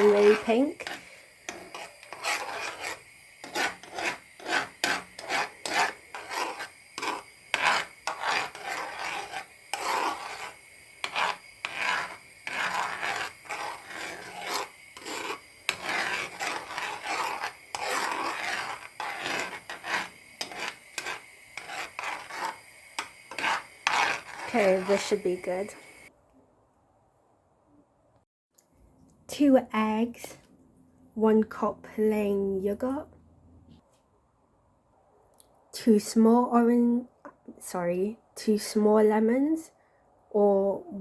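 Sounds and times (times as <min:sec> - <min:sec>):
utensil scraping a frying pan: 0:00.0 - 0:26.1.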